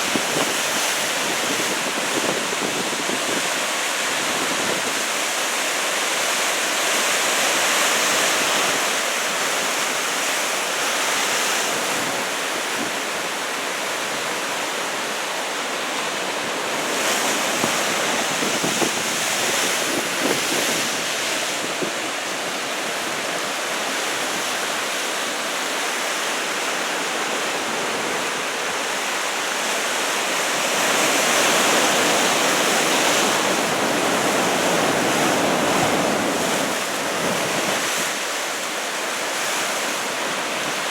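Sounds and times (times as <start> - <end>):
wind on microphone: 0.0 - 5.2, 16.4 - 23.5, 30.6 - 38.3.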